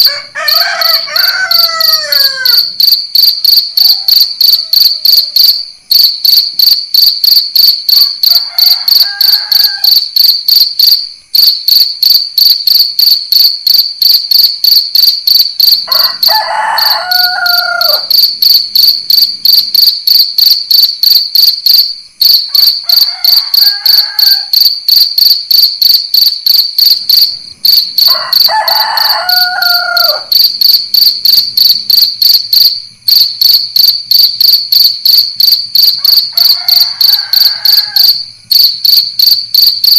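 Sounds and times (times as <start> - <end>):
rooster crowing: 0.0 - 2.9, 3.6 - 5.7, 8.0 - 10.2, 15.8 - 18.4, 22.5 - 24.8, 27.7 - 30.7, 36.0 - 38.3
crickets chirping: 0.0 - 39.9.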